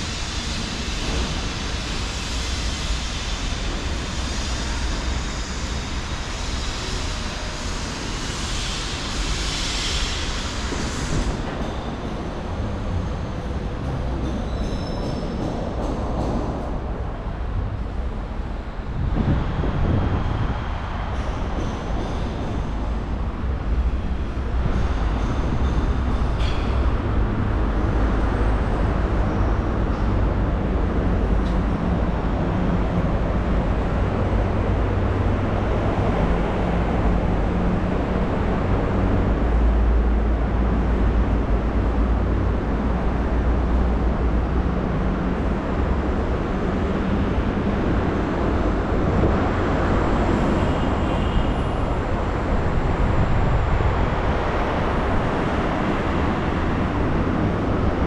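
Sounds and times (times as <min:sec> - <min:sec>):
motor traffic rumble: 0:15.6 - 0:58.0.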